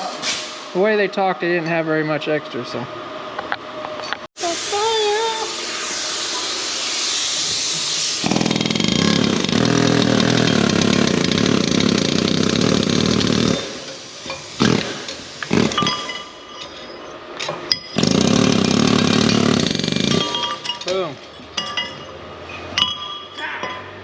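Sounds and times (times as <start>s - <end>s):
hiss: 4.4s - 8.2s
metal cutting buzz: 8.2s - 13.9s.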